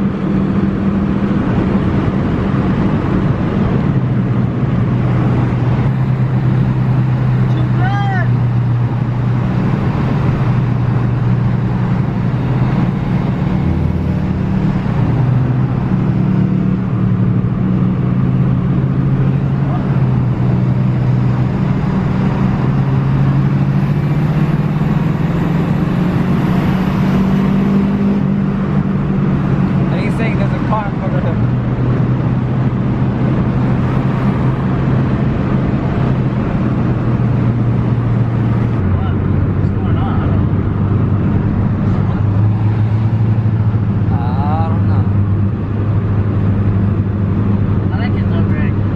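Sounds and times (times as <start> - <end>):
car engine droning while driving: 0.0 - 48.9.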